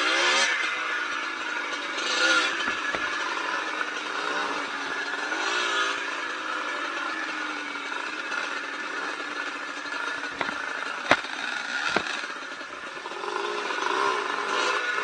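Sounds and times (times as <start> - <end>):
dirt bike engine running: 0.0 - 15.0
sharp knocks: 10.4 - 12.2.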